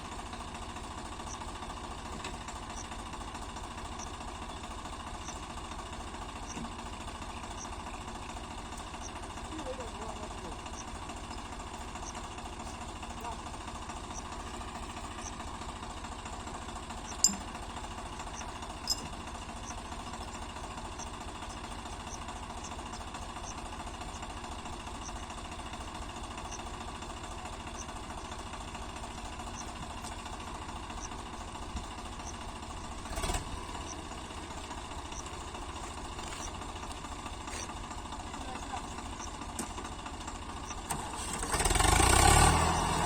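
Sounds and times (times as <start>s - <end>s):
diesel tractor engine idling: 0.0s - 43.0s
sharp clicks: 5.2s - 5.4s, 17.0s - 24.2s, 40.6s - 41.5s.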